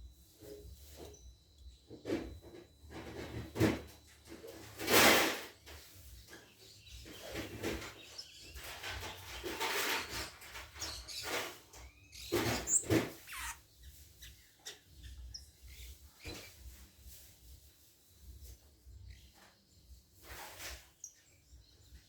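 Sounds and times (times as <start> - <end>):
faint high bird chirps: 0.8 - 2.3, 5.6 - 16.8, 18.8 - 22.0
birds rustling and flapping: 1.9 - 21.1.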